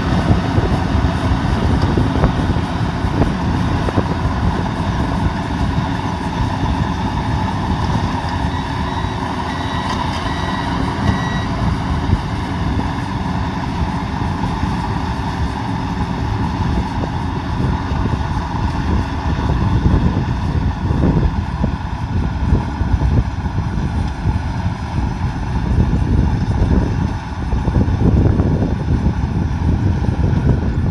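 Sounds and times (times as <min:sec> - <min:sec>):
diesel engine running: 0:00.0 - 0:30.9
reversing alarm beeps: 0:07.8 - 0:12.5.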